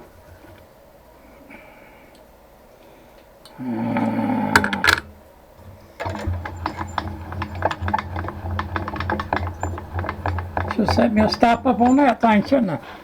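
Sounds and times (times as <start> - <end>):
electric motor running: 6.0 - 12.7
rattle of ticks: 6.0 - 13.0.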